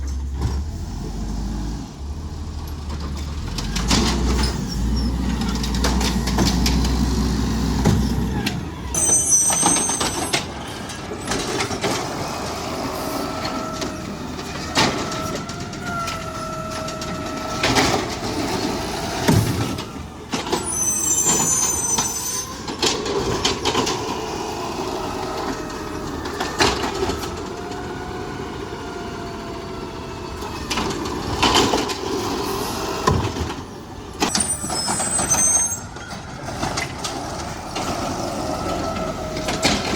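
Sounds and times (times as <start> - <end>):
truck engine whining: 0.0 - 39.9
short high squeals: 8.0 - 10.8, 20.5 - 22.7, 34.3 - 36.2.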